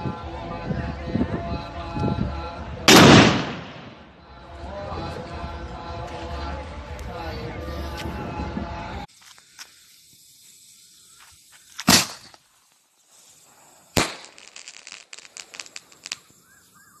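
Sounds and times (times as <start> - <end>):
firework bangs: 2.9 - 4.2, 10.0 - 12.5, 13.3 - 16.8
crackling firework pops: 9.1 - 17.0.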